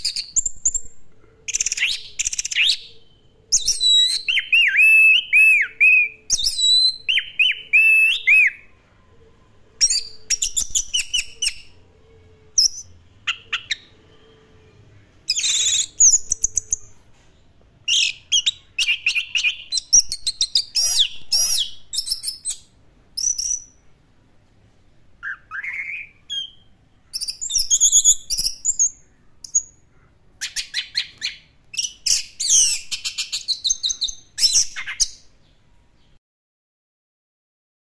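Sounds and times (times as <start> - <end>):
thrush singing whistles and trills: 1.5 - 8.7, 9.8 - 16.9, 17.9 - 23.8, 25.2 - 29.8, 30.4 - 35.2.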